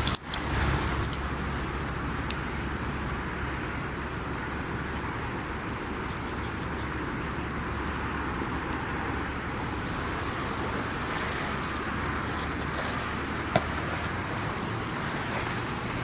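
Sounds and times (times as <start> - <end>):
sharp pops of burning wood: 0.0 - 4.2, 9.6 - 16.0
campfire burning: 0.0 - 16.0.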